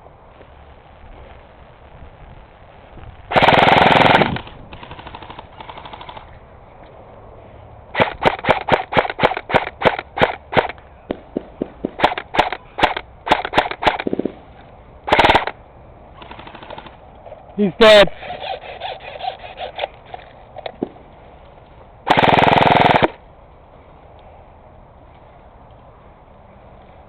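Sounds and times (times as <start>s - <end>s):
airsoft guns firing rapidly: 3.3s - 6.3s, 7.9s - 14.3s, 15.1s - 15.6s, 16.2s - 17.0s, 22.1s - 23.2s.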